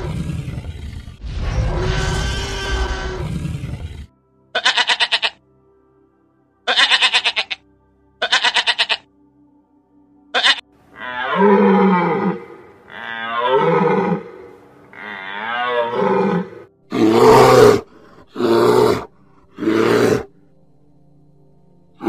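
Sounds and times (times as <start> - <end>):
goat bleat: 4.6 - 5.4, 6.7 - 7.6, 8.2 - 9.0, 10.3 - 10.6.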